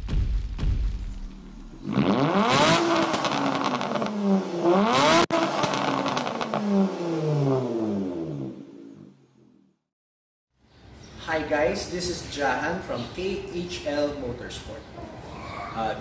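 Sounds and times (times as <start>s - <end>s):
car engine revving: 1.3s - 9.6s.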